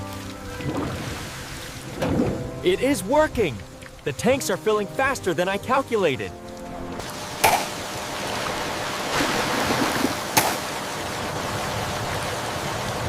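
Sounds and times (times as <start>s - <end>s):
rushing water: 0.0s - 13.0s
heavy rain: 6.3s - 13.0s
sharp cracks: 7.4s - 7.9s, 10.3s - 10.8s.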